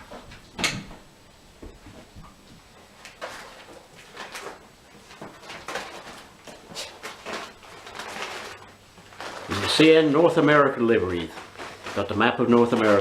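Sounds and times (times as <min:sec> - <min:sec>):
packaging rustling and scraping: 0:02.9 - 0:13.0.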